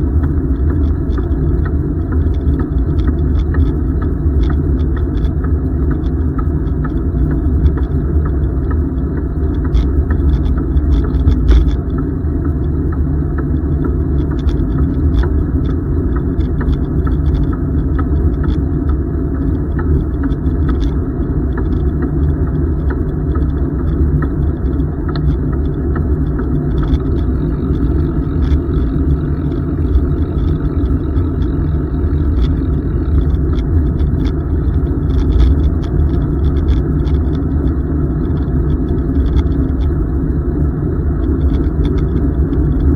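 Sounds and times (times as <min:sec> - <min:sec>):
light clicks and rattles: 0:00.0 - 0:42.9
bicycle tyre noise: 0:24.6 - 0:38.1.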